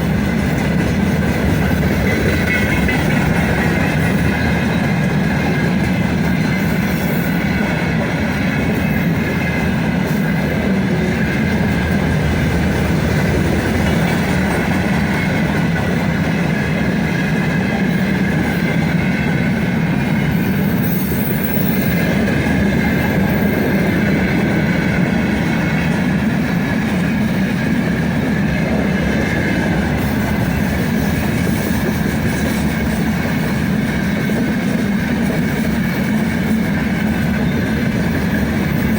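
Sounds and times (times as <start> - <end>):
train wheels rumbling on rail: 0.0 - 38.9
faint high wheel squeal: 20.3 - 22.3.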